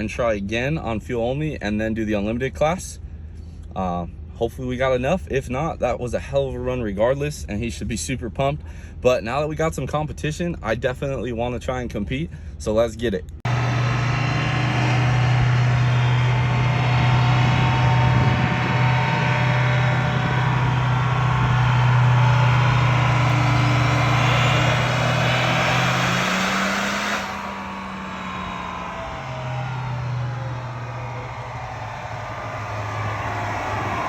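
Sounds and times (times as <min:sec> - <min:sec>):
diesel engine low drone: 0:13.4 - 0:34.0.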